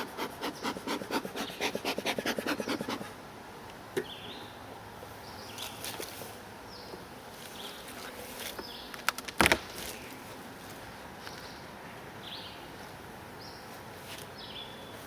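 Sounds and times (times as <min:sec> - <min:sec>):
honeybees buzzing: 0:00.0 - 0:03.2.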